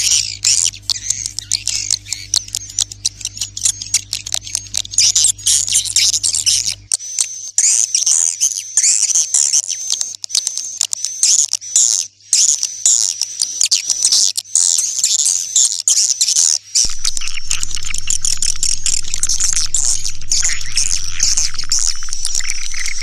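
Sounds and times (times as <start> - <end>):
swiftlets chirping and twittering: 0.0 - 6.8, 16.8 - 23.0
steady low hum: 0.0 - 6.9, 16.8 - 23.0.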